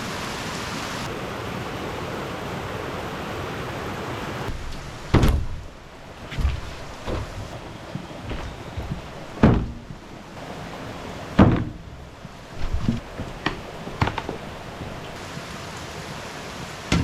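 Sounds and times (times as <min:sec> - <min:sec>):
steady rain: 0:00.0 - 0:17.0
light knocks and clicks: 0:04.5 - 0:10.1, 0:12.6 - 0:15.2
dull thumps and knocks: 0:04.5 - 0:10.4, 0:11.3 - 0:15.2, 0:16.6 - 0:17.0.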